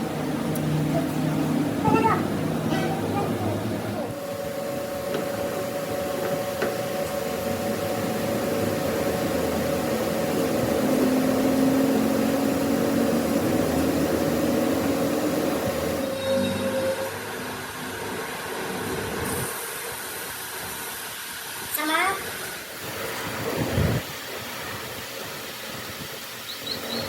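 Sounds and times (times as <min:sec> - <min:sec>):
motor whine with hiss: 0:00.0 - 0:27.0.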